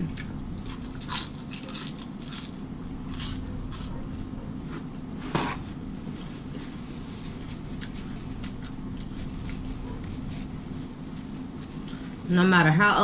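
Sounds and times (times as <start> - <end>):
steady low hum: 0.0 - 13.0
person chewing food: 0.1 - 4.1, 7.0 - 10.3.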